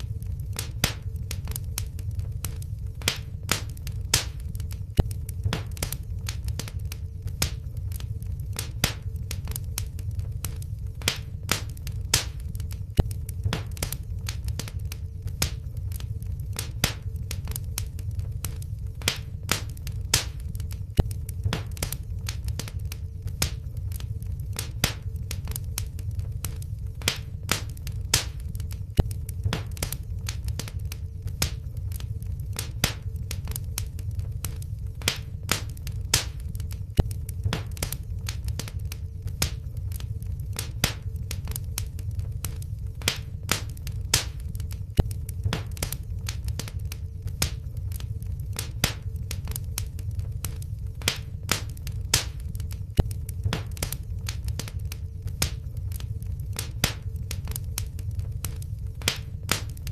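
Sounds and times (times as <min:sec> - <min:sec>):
faint steady hum: 0:00.0 - 0:59.9
wood fire crackling and popping: 0:00.0 - 0:59.9.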